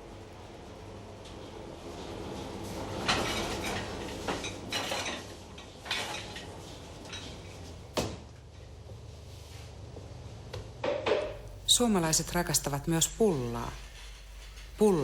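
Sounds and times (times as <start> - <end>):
dishes and utensils clinking: 3.1 - 6.5.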